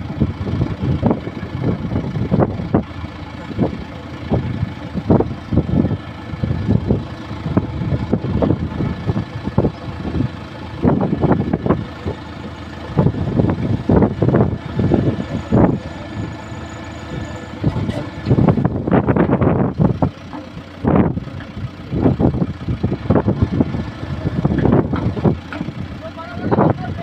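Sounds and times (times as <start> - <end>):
heavy diesel engine running: 0.0 - 27.0.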